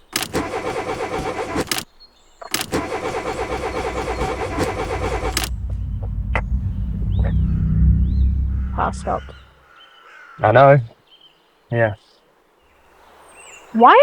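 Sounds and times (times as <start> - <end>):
car starter motor cranking: 0.0 - 1.8, 2.4 - 9.5
low steady rumble: 2.6 - 9.6.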